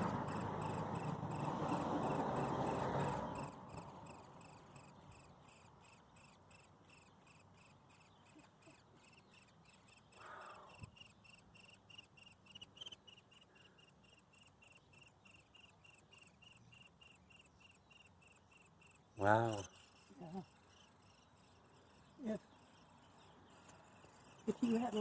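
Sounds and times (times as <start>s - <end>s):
faint high chirping: 0.0s - 25.0s.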